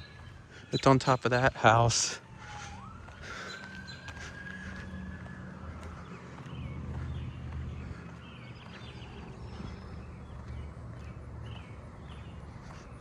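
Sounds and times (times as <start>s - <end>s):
robin singing: 0.0s - 2.1s, 6.0s - 13.0s.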